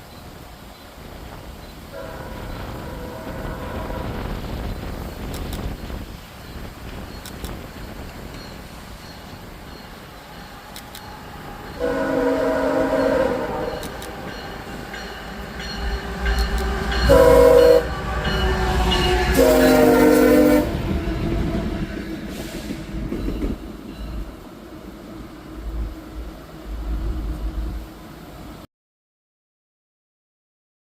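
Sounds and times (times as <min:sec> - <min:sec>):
low locomotive engine rumble: 0:00.0 - 0:28.6
locomotive air horn blasts: 0:01.9 - 0:04.5, 0:11.7 - 0:14.8, 0:15.8 - 0:22.7.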